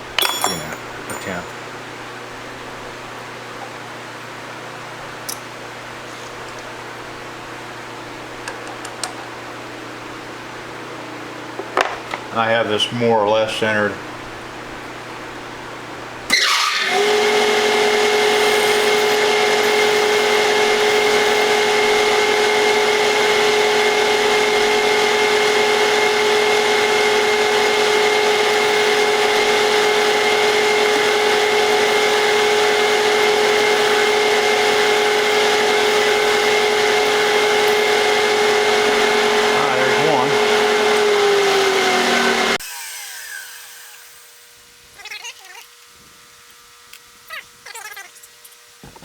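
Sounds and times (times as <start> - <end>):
milling machine spindle whine: 16.3 - 44.4.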